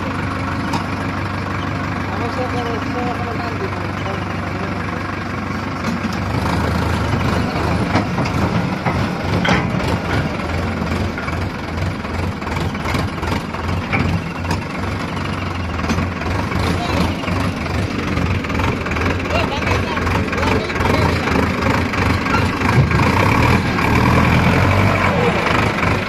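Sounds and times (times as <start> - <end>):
heavy diesel engine running: 0.0 - 26.0
sharp metallic clanks: 7.8 - 11.4.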